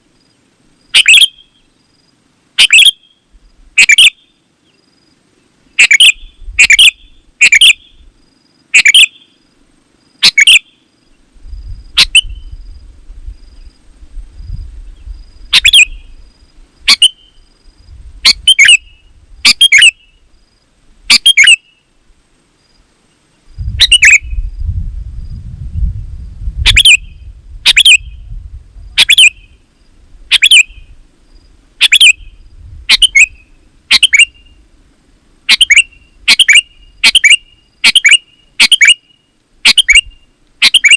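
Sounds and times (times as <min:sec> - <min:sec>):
bird calling with sharp notes: 0:00.9 - 0:01.8, 0:02.6 - 0:04.4, 0:05.7 - 0:08.1, 0:08.7 - 0:09.4, 0:10.2 - 0:10.9, 0:11.9 - 0:12.6, 0:15.5 - 0:16.2, 0:16.8 - 0:17.5, 0:18.2 - 0:20.3, 0:21.1 - 0:21.9, 0:23.8 - 0:24.5, 0:26.6 - 0:28.3, 0:29.0 - 0:29.7, 0:30.3 - 0:31.0, 0:31.8 - 0:34.6, 0:35.5 - 0:40.9.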